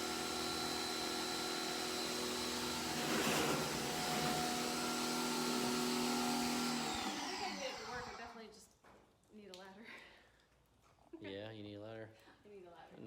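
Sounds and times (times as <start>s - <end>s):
pressure washer machine hum: 0.0s - 8.3s.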